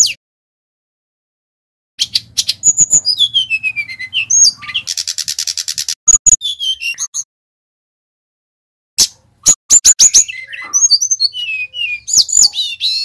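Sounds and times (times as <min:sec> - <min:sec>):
bird singing: 0:02.0 - 0:07.3, 0:09.4 - 0:13.0.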